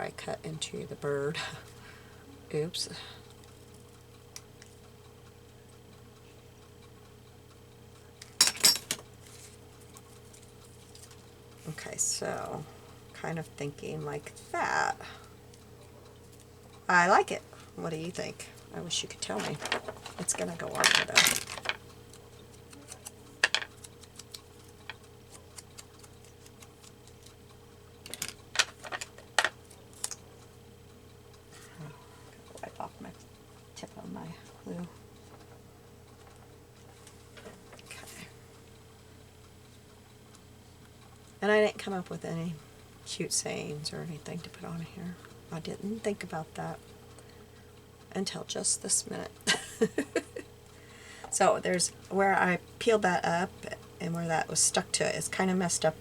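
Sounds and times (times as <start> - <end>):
faint steady hum: 0.0 - 56.0
paper clicks and taps: 22.6 - 27.4.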